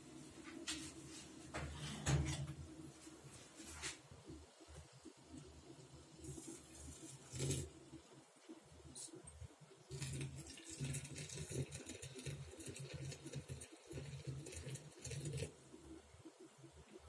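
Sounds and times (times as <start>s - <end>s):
hot water pouring into teapot: 5.4s - 8.3s, 9.8s - 15.8s.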